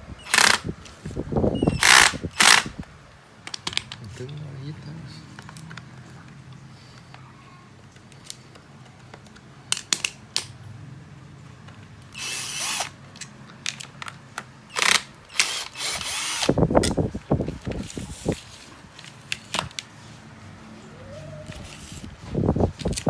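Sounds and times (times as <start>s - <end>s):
small power tool running: 0.2s - 0.6s, 1.8s - 2.7s, 12.2s - 12.9s, 14.7s - 16.6s.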